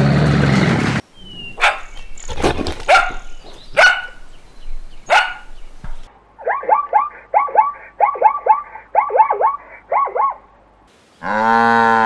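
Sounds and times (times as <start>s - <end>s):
hyenas yelping: 1.2s - 4.4s, 5.0s - 5.8s, 6.4s - 10.5s.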